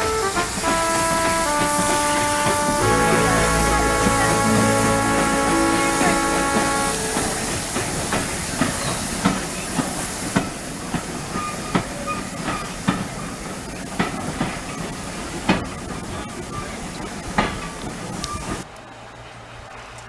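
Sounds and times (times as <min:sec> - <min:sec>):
train rushing hiss: 0:00.0 - 0:10.8.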